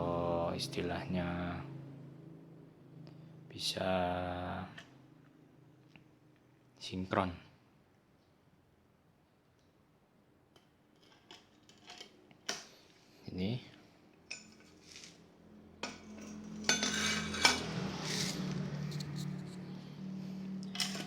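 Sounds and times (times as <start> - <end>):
metal objects clinking: 15.8 - 19.5, 20.7 - 21.0.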